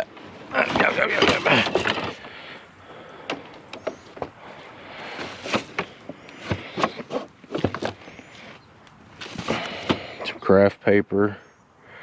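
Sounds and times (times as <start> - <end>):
junk knocking and clicking: 0.6 - 4.5, 5.1 - 8.1.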